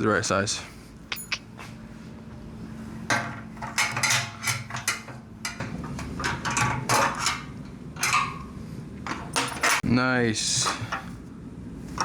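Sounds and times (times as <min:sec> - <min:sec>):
wrench clinking against metal fitting: 0:01.1 - 0:01.5.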